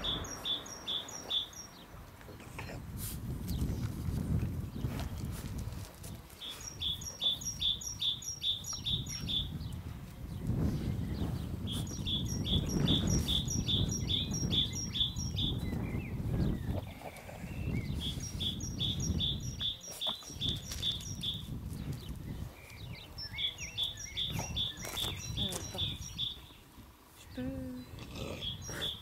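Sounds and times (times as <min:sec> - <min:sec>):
small bird chirping rapidly: 0:00.0 - 0:01.9, 0:11.6 - 0:16.6, 0:17.6 - 0:26.6
low rumbling noise: 0:00.0 - 0:05.8.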